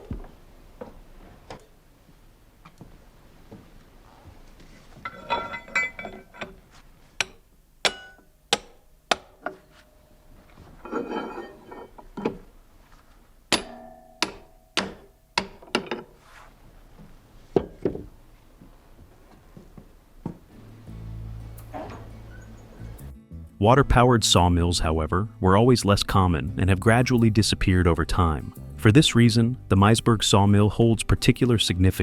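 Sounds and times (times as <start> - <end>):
jangling metallic clinks: 5.1 - 6.5
hammer striking metal: 7.2 - 9.6, 13.5 - 16.1.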